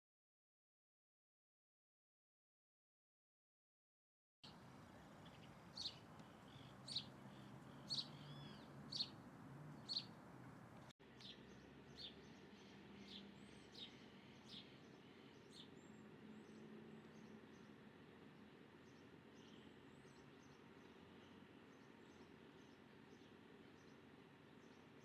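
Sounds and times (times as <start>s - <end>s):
bird chirping: 4.4s - 17.6s
soft bird calls: 4.4s - 17.7s
low steady hum: 4.5s - 10.9s.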